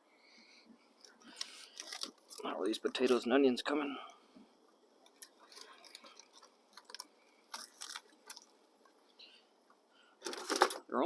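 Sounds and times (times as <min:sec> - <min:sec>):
cooking gear clicks and rustles: 0:01.0 - 0:03.3, 0:05.0 - 0:09.0, 0:10.2 - 0:10.9.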